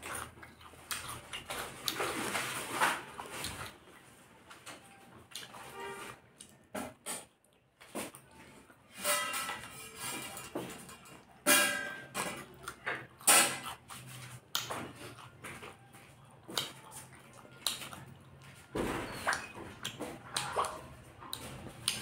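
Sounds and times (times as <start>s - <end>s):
wet chewing and lip-smacking: 0.0s - 2.4s, 5.2s - 5.7s, 12.4s - 22.0s.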